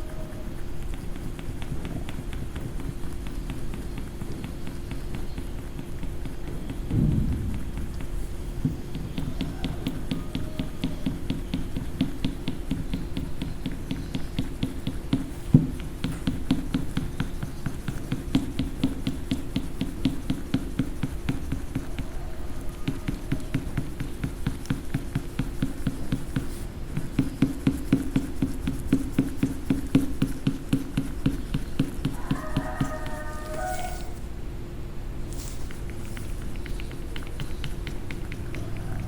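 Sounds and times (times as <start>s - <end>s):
scribbling on paper: 0.0s - 34.3s, 35.2s - 39.0s
sharp knock: 6.9s - 9.8s.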